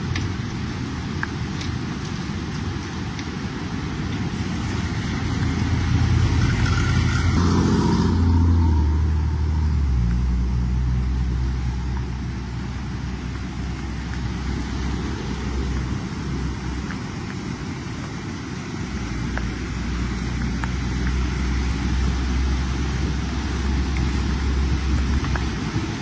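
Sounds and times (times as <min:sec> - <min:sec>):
steady rushing noise: 0:00.0 - 0:26.0
vehicle engine passing: 0:05.1 - 0:17.2.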